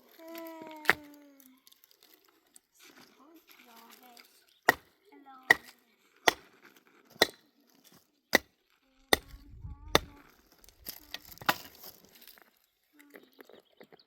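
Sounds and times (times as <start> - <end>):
rustling: 0.0 - 4.7
sharp strikes on wood: 4.7 - 4.9, 5.5 - 6.5, 9.1 - 10.2.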